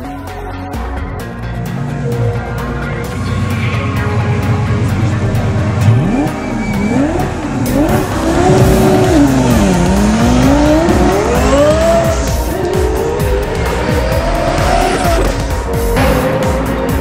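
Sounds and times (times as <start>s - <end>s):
sports car engine accelerating: 1.5s - 17.0s.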